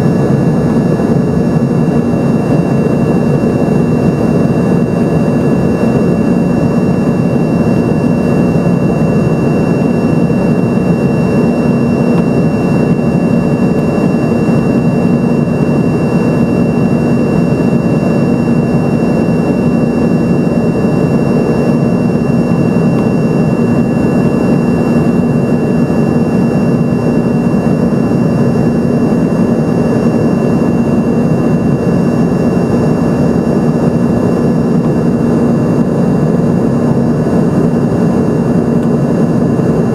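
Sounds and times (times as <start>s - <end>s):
jet engine cabin noise: 0.0s - 39.9s.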